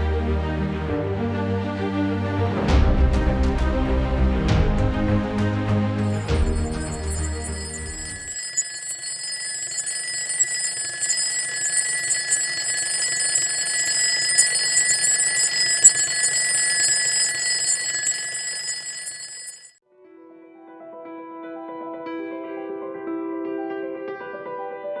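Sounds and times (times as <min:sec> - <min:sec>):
high ringing alarm: 0:06.0 - 0:19.8.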